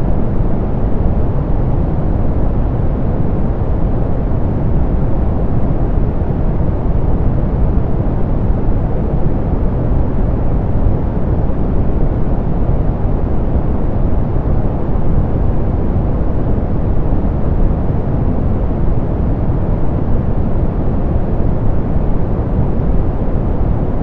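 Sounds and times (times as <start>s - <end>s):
steady pink noise hiss: 0.0s - 24.0s.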